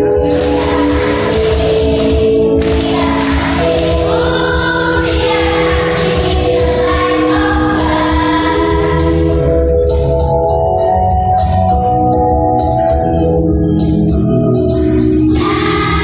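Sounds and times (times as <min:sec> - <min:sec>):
children's choir singing: 0:00.0 - 0:09.5, 0:15.3 - 0:16.0
musical accompaniment with low beat: 0:00.0 - 0:16.0.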